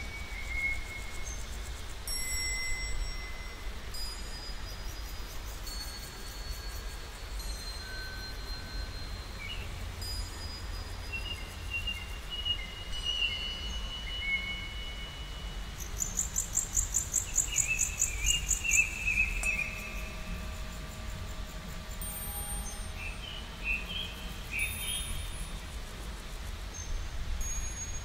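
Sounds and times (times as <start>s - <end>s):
birds whistling: 16.1s - 20.2s.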